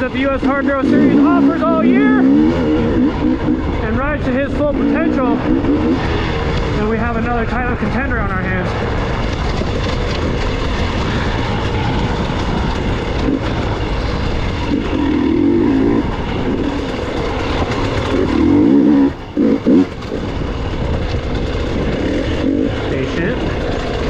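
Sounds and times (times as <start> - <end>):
dirt bike engine running: 0.0 - 24.0.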